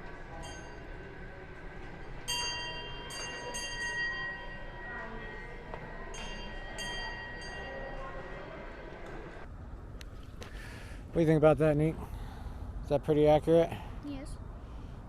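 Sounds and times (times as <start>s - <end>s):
metal bell ringing: 0.4s - 1.2s, 2.2s - 8.9s.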